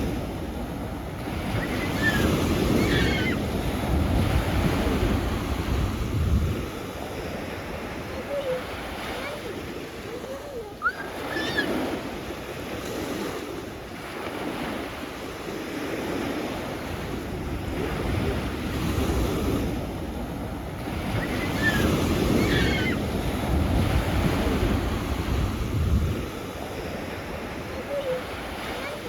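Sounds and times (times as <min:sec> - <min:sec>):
wind buffeting microphone: 0:00.0 - 0:12.7, 0:17.1 - 0:28.7
sea waves breaking on shore: 0:00.0 - 0:29.0
high chirping calls: 0:10.2 - 0:11.7.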